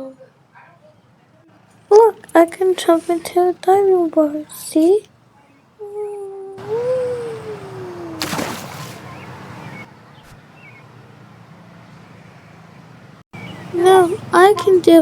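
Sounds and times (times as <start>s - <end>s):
long drawn-out cry: 6.5s - 8.6s
splash-like burst of noise: 8.2s - 9.2s.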